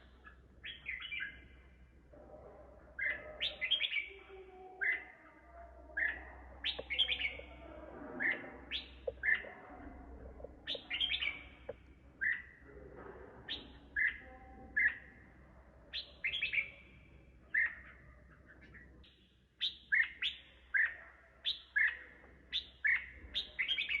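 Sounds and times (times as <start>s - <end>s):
bulbul singing: 0.0s - 1.6s, 2.9s - 4.2s, 5.9s - 12.6s, 13.5s - 15.2s, 15.9s - 16.9s, 18.6s - 24.0s.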